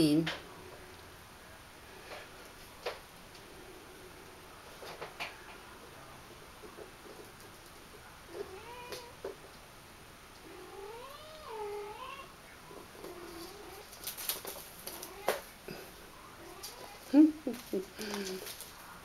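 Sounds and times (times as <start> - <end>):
clicks and rustles: 13.0 - 15.5, 16.6 - 19.0.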